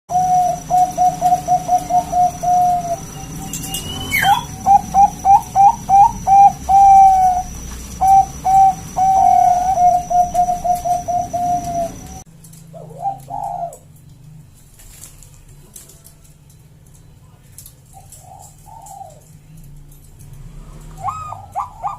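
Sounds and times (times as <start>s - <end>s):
dove cooing: 0.1s - 14.0s, 17.8s - 19.6s, 20.8s - 21.9s.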